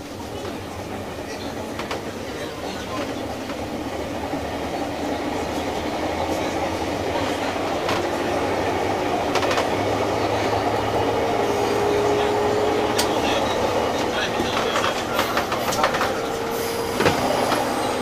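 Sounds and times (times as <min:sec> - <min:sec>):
electric train rumbling: 0:00.0 - 0:18.0
rail-joint clicks: 0:09.2 - 0:10.5, 0:12.7 - 0:18.0.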